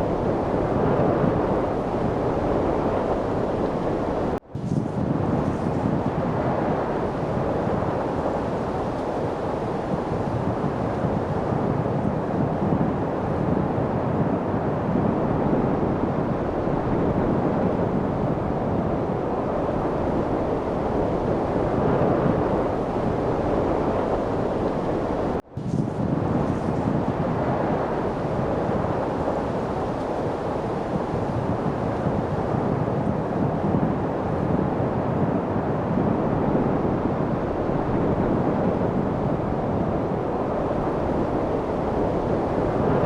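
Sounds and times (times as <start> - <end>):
light wind rushing: 0.0 - 43.0.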